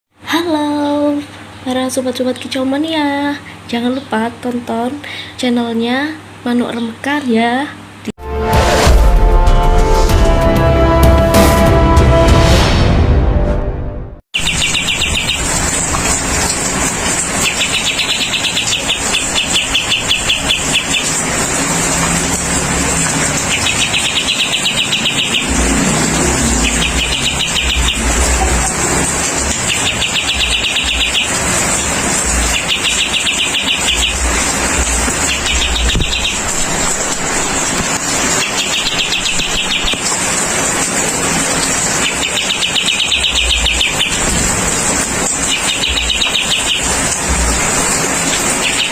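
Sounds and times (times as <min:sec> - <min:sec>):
songbird buzzy rattling song: 0:14.4 - 0:22.3, 0:23.0 - 0:48.9.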